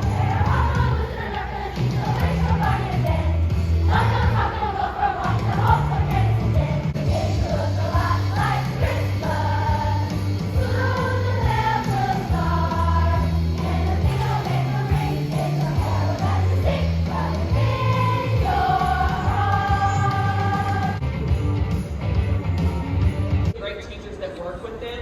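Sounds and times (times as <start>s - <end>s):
bass line: 0.0s - 1.1s, 1.8s - 4.5s, 5.2s - 23.5s
music with singing voices: 0.0s - 23.5s.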